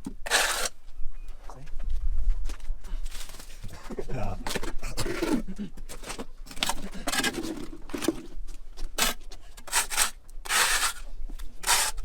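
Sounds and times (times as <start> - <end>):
rubbing and scraping strokes: 0.2 - 0.7, 9.0 - 12.0.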